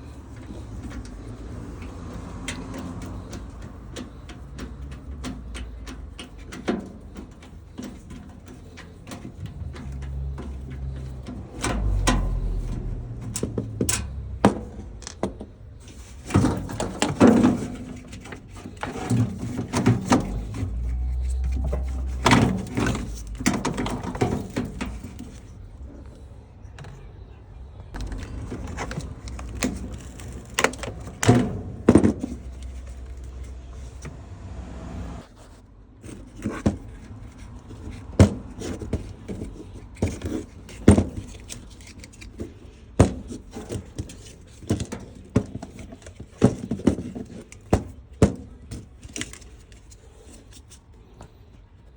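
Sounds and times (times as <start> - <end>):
plastic parts and tools clattering: 0.0 - 34.2, 36.0 - 51.7
low handling rumble: 0.0 - 35.3.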